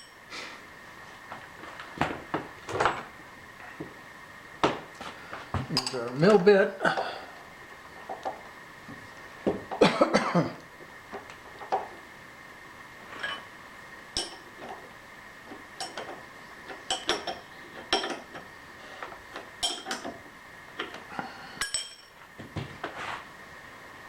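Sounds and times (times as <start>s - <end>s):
faint high whine: 0.0s - 24.0s.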